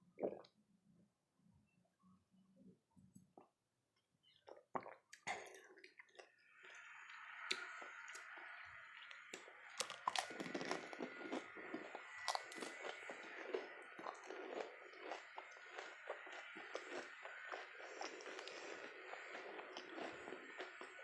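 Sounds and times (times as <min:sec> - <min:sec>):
wet chewing: 0:04.5 - 0:21.0
crisp shells crunching: 0:09.8 - 0:20.6.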